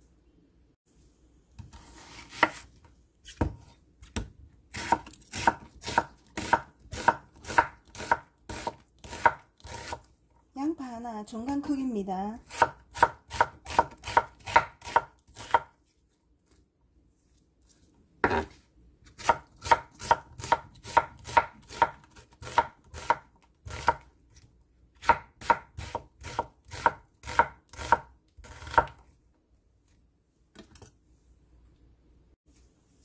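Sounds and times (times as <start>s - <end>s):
knife slicing onto cutting board: 1.6s - 3.7s.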